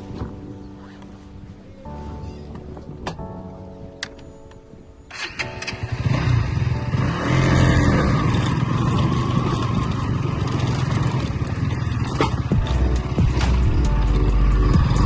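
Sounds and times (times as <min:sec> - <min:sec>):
road and wind noise: 0:05.1 - 0:12.5.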